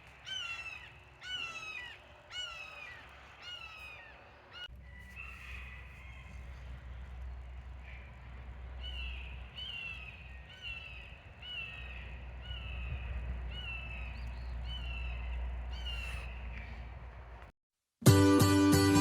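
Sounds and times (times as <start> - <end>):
bird harsh calls: 0.0 - 17.1
steady low hum: 5.8 - 17.5.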